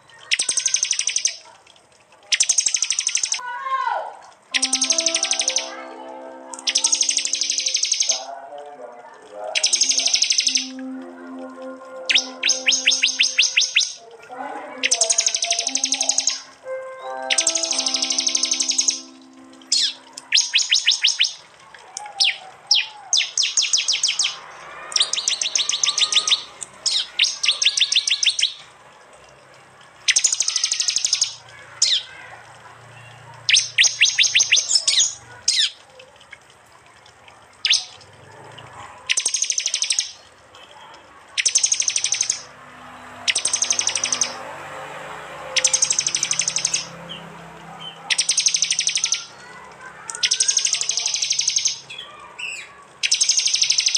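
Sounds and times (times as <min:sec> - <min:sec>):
bird calls with rapid sharp chips: 0:00.2 - 0:01.5, 0:02.3 - 0:03.4, 0:06.6 - 0:08.2, 0:09.6 - 0:10.7, 0:12.1 - 0:14.0, 0:17.3 - 0:21.5, 0:22.1 - 0:28.7, 0:30.1 - 0:32.3, 0:33.5 - 0:35.8, 0:37.6 - 0:38.1, 0:39.1 - 0:40.3, 0:41.3 - 0:42.5, 0:43.3 - 0:44.4, 0:45.6 - 0:47.2, 0:47.8 - 0:53.9.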